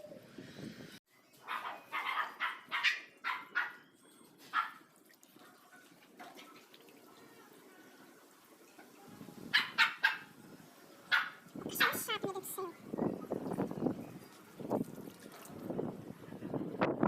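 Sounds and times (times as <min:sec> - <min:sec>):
dog barking: 0:01.5 - 0:03.8, 0:04.5 - 0:04.8, 0:09.5 - 0:10.3, 0:11.1 - 0:12.0.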